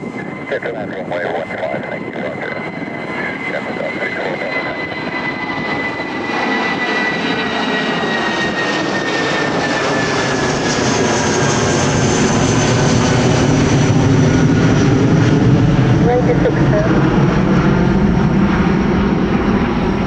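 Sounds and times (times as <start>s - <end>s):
jet engines whining: 0.0s - 20.0s.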